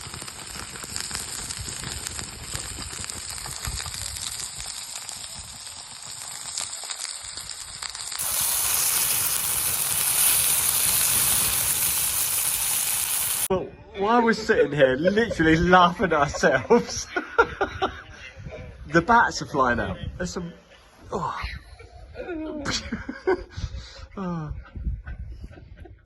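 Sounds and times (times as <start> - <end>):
burgers sizzling and crackling: 0.0 - 13.5
steady hiss: 0.0 - 13.5.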